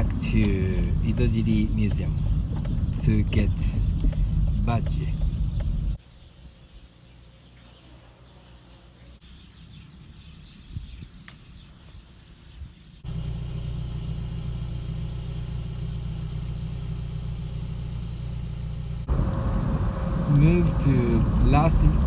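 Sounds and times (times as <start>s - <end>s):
light knocks: 0.0s - 3.0s
car driving road and engine noise: 0.0s - 6.0s, 13.0s - 22.0s.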